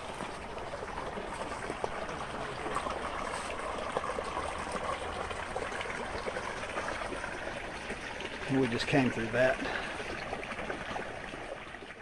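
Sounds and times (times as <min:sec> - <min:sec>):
creek water over rocks: 0:00.0 - 0:12.0.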